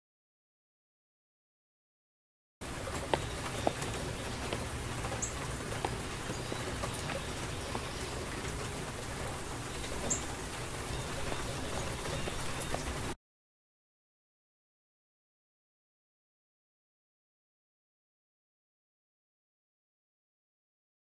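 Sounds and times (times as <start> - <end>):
light drips and taps: 2.6 - 13.2
steady rain: 2.6 - 13.2.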